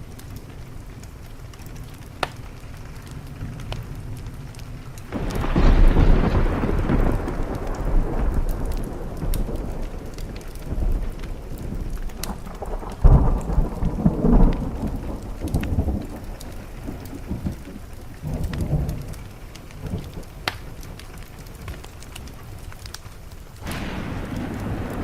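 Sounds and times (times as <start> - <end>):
rain on a window: 0.0 - 25.0
thunder rumbling: 0.0 - 25.0
wood fire crackling: 0.0 - 25.0.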